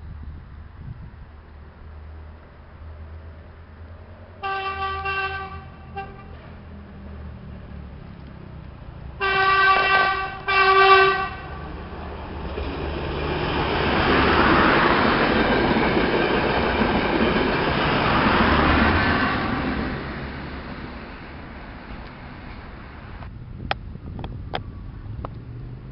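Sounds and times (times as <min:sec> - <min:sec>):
train rushing past: 0:01.1 - 0:23.6
train horn blasts: 0:04.4 - 0:06.5, 0:09.2 - 0:11.8, 0:19.0 - 0:19.9.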